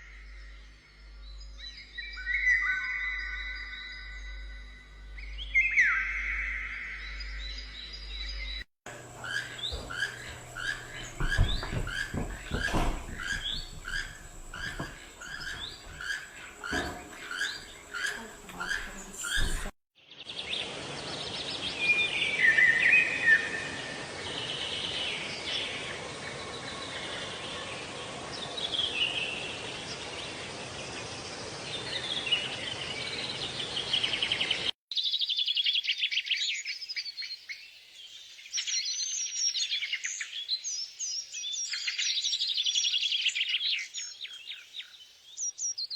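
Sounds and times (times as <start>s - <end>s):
small bird chirping: 5.2s - 19.7s, 34.1s - 45.9s.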